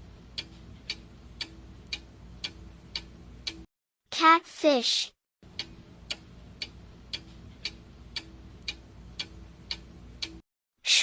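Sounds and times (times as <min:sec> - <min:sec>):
clock ticking: 0:00.1 - 0:03.7, 0:05.4 - 0:10.4.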